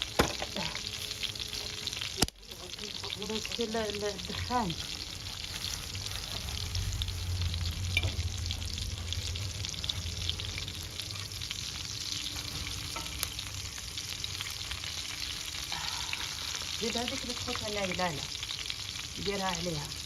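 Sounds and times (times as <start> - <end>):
food sizzling over a wood fire: 0.0 - 20.0
low rumble: 5.8 - 14.1.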